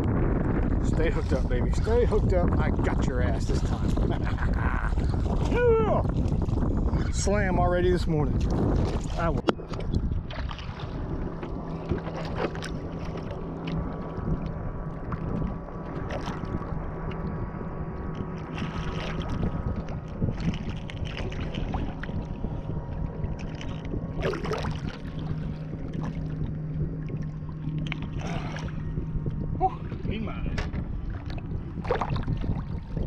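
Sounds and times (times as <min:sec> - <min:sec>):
steady low hum: 0:00.0 - 0:33.0
water slapping against hull: 0:00.0 - 0:33.0
wind noise: 0:00.0 - 0:33.0
short knocks and splashes: 0:08.4 - 0:13.8, 0:14.4 - 0:17.2, 0:18.2 - 0:22.2, 0:23.3 - 0:28.8, 0:29.8 - 0:33.0.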